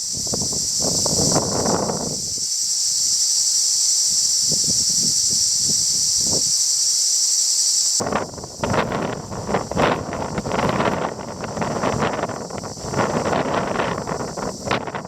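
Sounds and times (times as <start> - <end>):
wind buffeting microphone: 0.0 - 2.5, 4.2 - 6.6, 8.0 - 15.0
cicada chorus buzzing: 0.0 - 15.0.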